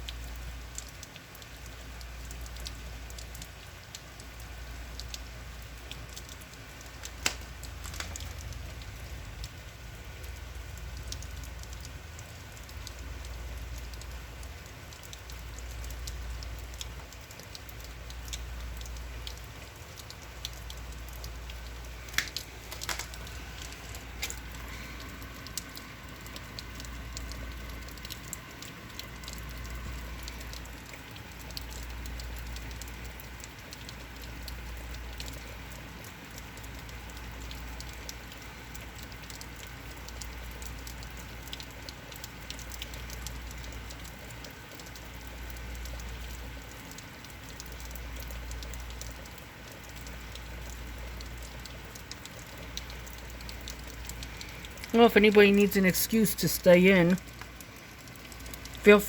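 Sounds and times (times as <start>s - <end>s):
rain drops pattering: 0.0s - 59.0s
sharp clicks: 7.0s - 8.4s, 21.6s - 24.8s.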